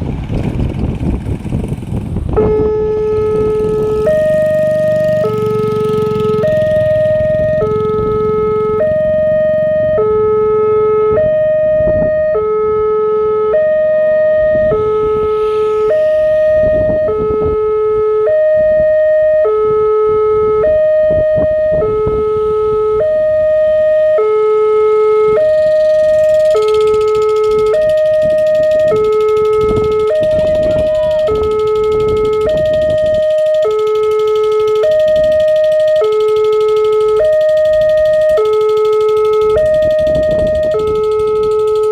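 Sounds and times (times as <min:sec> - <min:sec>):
two-tone level crossing bell: 0:25.4 - 0:41.9.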